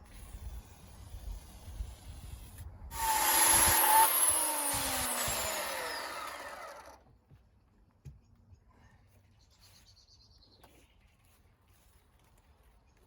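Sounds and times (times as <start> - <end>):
chainsaw revving: 3.0 - 7.0.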